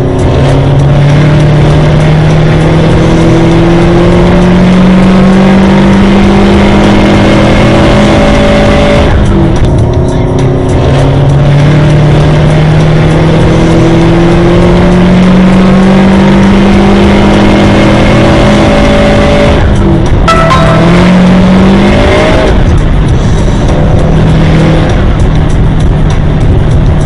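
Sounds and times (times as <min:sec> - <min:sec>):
car engine accelerating hard: 0:00.0 - 0:27.0.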